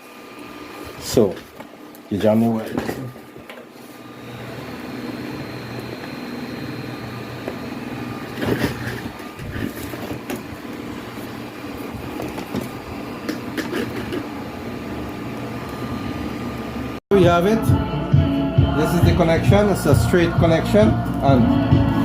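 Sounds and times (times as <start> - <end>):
music through speakers: 17.2 - 22.0.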